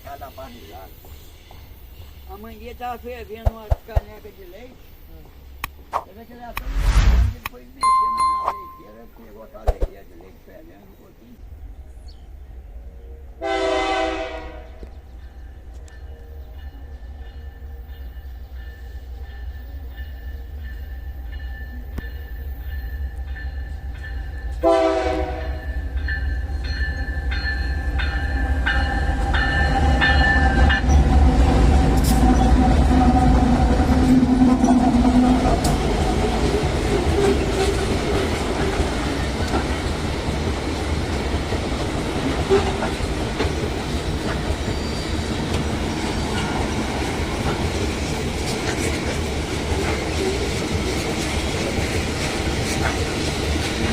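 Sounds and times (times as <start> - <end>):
locomotive horn blasts: 13.4 - 14.8, 24.6 - 25.7.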